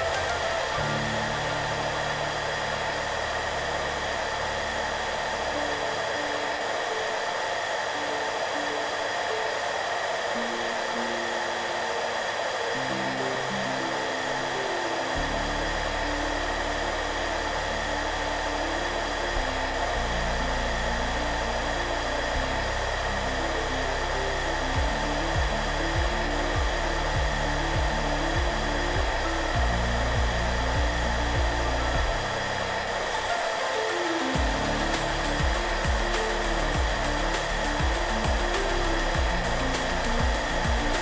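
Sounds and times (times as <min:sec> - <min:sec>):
pulsing bass: 0:00.0 - 0:06.0, 0:15.2 - 0:33.2, 0:34.4 - 0:41.0
hair dryer blowing: 0:00.0 - 0:41.0
soft background music: 0:00.0 - 0:41.0.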